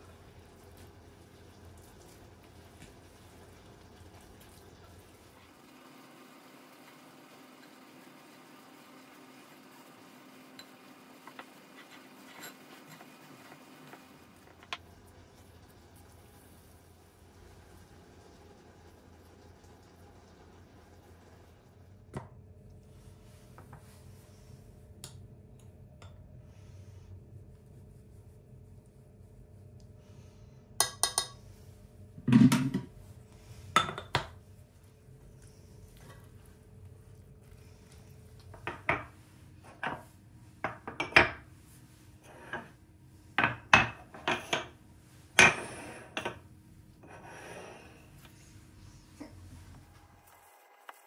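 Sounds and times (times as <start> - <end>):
faint steady hum: 0.0 - 51.0
kitchenware clinking: 10.6 - 13.1, 30.8 - 31.4, 33.8 - 34.4, 38.5 - 39.1, 39.7 - 41.4, 43.4 - 44.7, 45.4 - 46.4
kitchenware clattering: 11.3 - 14.7, 32.2 - 32.9, 33.8 - 34.4, 38.5 - 41.4, 43.4 - 46.4.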